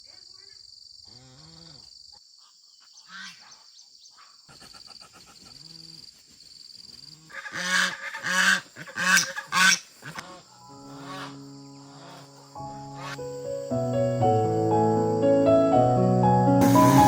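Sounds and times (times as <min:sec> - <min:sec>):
high insect drone: 0:00.0 - 0:17.0
geese honking: 0:07.3 - 0:13.2.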